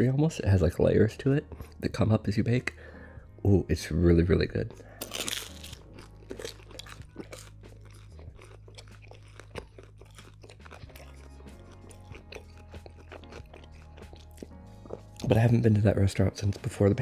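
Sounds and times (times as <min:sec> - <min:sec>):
soft background music: 0:00.0 - 0:17.0
person chewing crispy crust: 0:01.4 - 0:01.8, 0:04.7 - 0:15.6.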